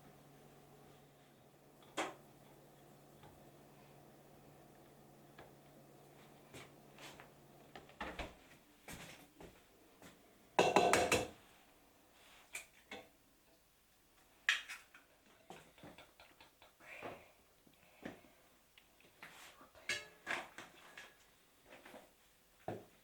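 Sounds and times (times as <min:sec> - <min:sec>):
low steady hum: 0:00.0 - 0:08.0
dishes and cookware clattering: 0:10.6 - 0:11.4, 0:19.8 - 0:21.2.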